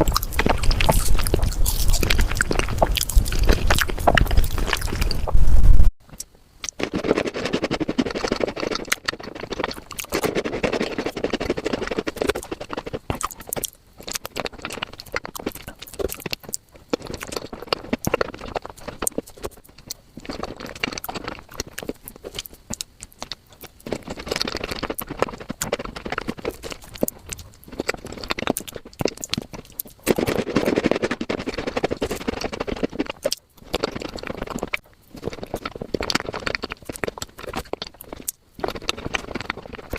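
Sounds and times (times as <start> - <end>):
sped-up chewing and mouth clicks: 0.0 - 39.9.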